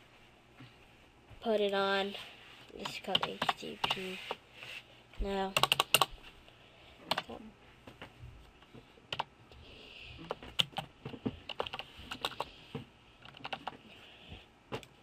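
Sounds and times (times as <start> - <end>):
computer keyboard typing: 2.8 - 4.1, 5.5 - 6.1, 7.1 - 7.4, 9.1 - 9.3, 10.2 - 12.5, 13.2 - 13.8.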